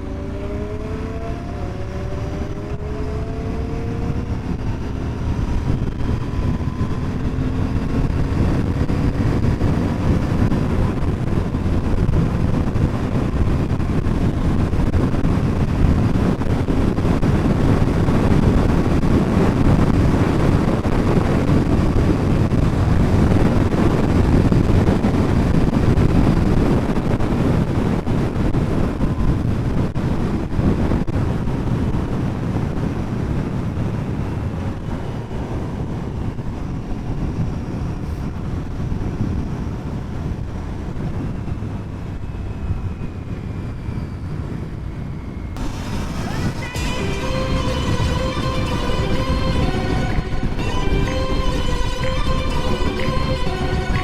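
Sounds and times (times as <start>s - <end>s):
motorcycle engine accelerating: 0.0s - 38.0s
wind rush on microphone: 0.0s - 54.0s.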